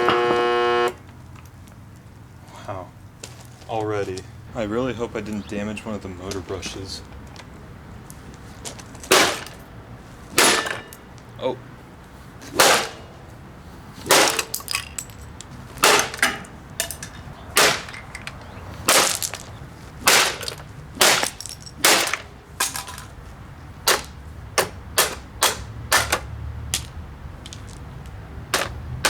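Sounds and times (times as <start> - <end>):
blows striking vacuum cleaner: 0.0 - 1.0, 12.4 - 13.2.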